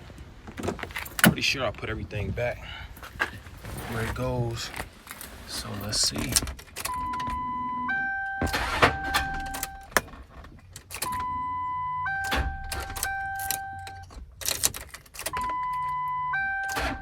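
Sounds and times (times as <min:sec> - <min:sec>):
starter clicks and clunks: 0:05.8 - 0:17.0
electronic beep: 0:06.9 - 0:09.9, 0:11.1 - 0:14.0, 0:15.4 - 0:17.0
lower two-note tone: 0:07.2 - 0:09.8.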